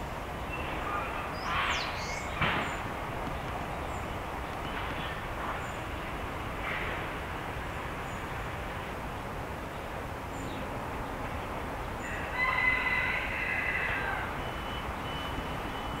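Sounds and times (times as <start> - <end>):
songbird singing: 0.2 - 6.2, 9.6 - 16.0.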